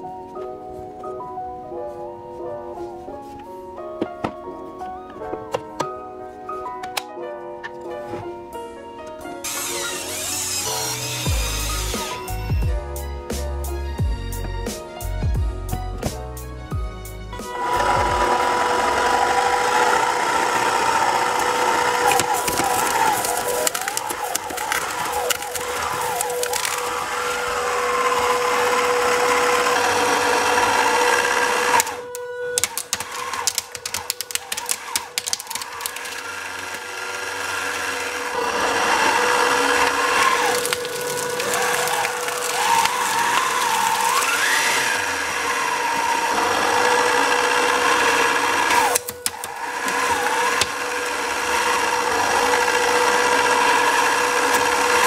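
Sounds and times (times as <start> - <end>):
shredder gear whine: 9.3 - 12.8, 17.3 - 55.0
material cracking and crunching: 21.4 - 28.6, 32.6 - 36.7, 39.7 - 45.0.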